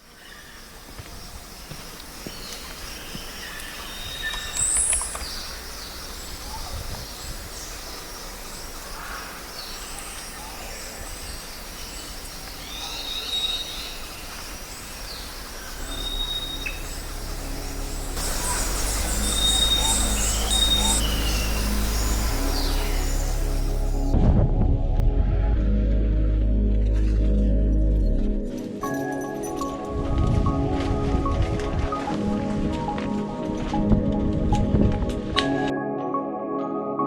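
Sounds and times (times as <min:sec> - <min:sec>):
birds singing and calling: 0:00.2 - 0:24.2
outdoor background hiss: 0:04.6 - 0:24.2.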